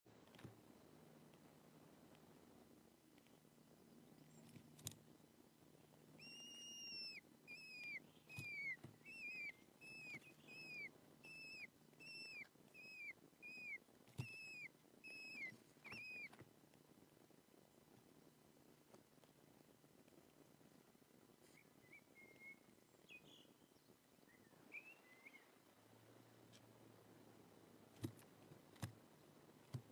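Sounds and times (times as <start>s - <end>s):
falcon whistled calls: 6.2s - 16.4s.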